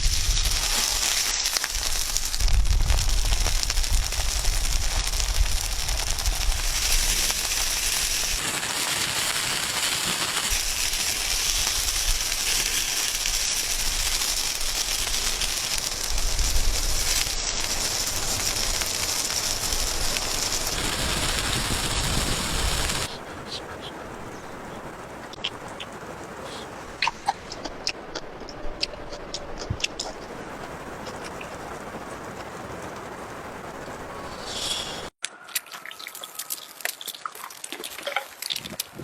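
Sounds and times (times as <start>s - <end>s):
food sizzling on hot rock: 0.0s - 23.2s, 34.3s - 35.2s.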